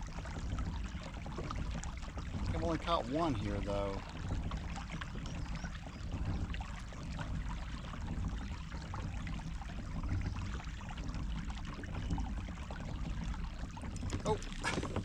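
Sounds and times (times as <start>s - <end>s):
low steady rumble: 0.0s - 15.0s
water splashing along kayak hull: 0.0s - 15.0s.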